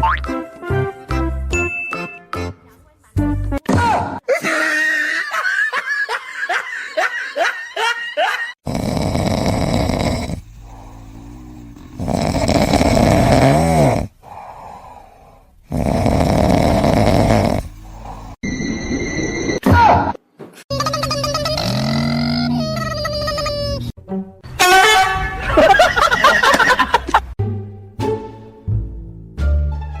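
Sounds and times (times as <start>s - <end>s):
animal snoring: 8.6s - 14.4s, 15.7s - 18.4s.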